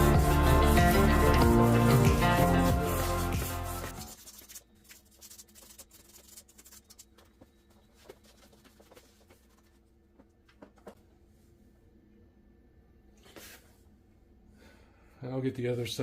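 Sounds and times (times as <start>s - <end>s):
sandpaper scratching metal: 0.0s - 7.1s.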